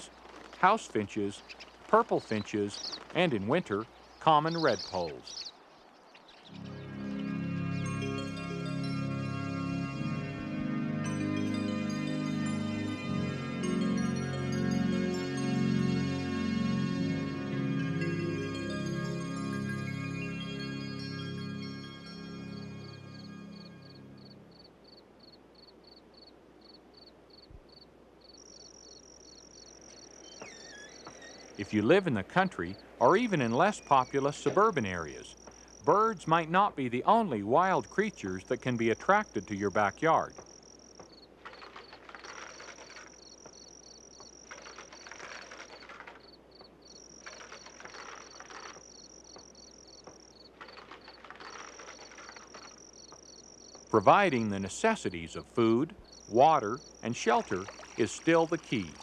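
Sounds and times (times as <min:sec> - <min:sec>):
crickets chirping: 0:00.0 - 0:59.0
insect high-pitched trill: 0:06.4 - 0:31.6, 0:37.7 - 0:55.3, 0:56.0 - 0:59.0.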